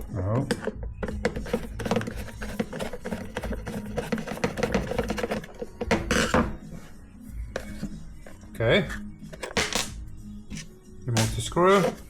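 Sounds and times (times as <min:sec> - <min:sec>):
metal parts and tools clinking: 0:09.3 - 0:10.0.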